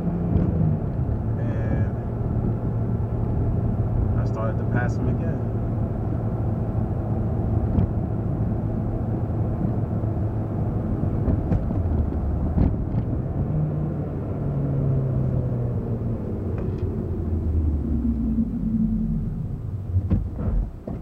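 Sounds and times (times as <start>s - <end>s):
car engine hum: 0.0s - 21.0s
road rumble: 0.0s - 21.0s.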